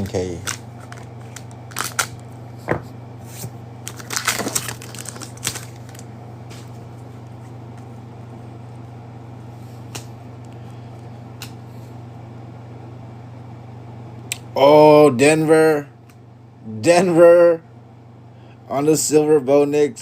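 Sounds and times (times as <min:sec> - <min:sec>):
steady low hum: 0:00.0 - 0:20.0
cards rustling and clicking: 0:00.4 - 0:02.2, 0:03.3 - 0:06.8.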